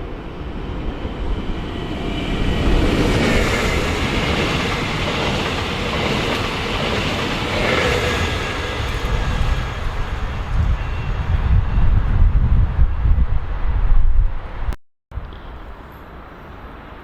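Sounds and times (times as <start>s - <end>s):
train wheels rolling on rail: 0.5s - 11.8s.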